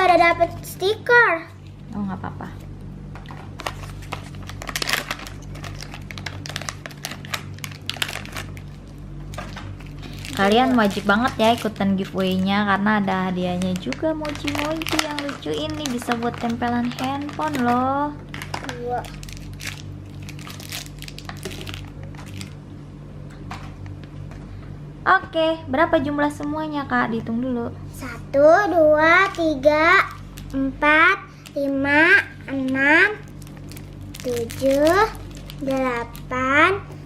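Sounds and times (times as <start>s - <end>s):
steady low hum: 0.0s - 37.0s
plastic packaging crackling: 3.1s - 22.6s, 28.8s - 36.8s.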